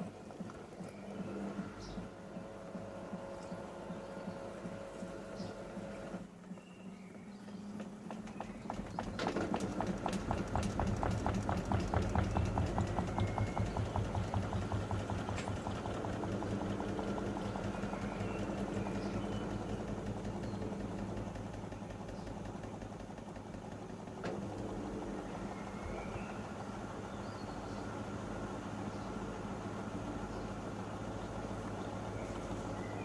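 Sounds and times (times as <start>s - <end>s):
washing machine humming: 0.0s - 33.0s.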